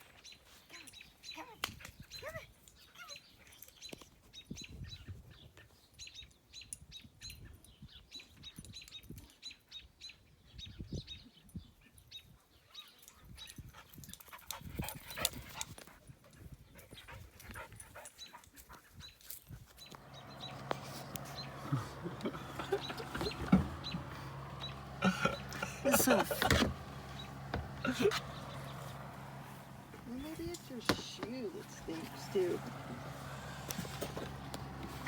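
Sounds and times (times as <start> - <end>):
light clicks and rustles: 17.3 - 35.0.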